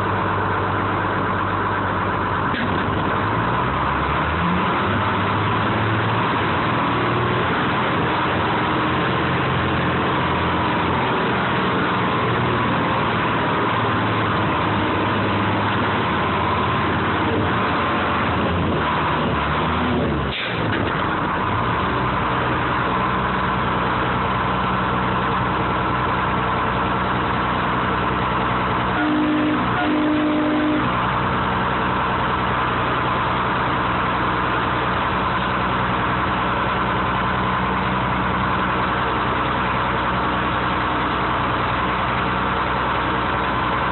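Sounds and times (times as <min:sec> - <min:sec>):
crane engine running: 0:00.0 - 0:43.9
short two-part tone: 0:28.9 - 0:30.9.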